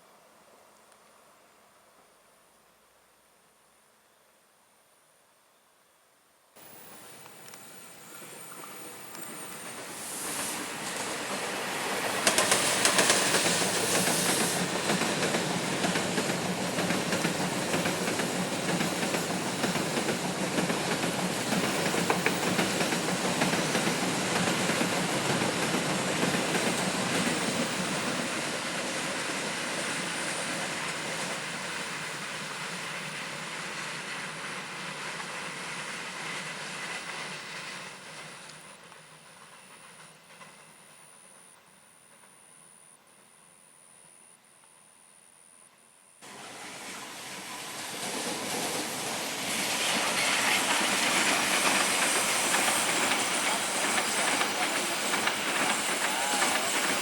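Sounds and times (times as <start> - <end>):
train wheels clattering on track: 7.0 - 41.4, 46.3 - 57.0.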